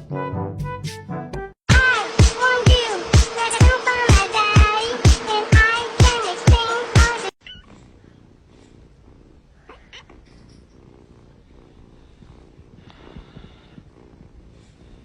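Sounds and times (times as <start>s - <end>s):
children's song with steady beat: 1.7s - 7.4s
cat purring quietly: 7.4s - 15.0s.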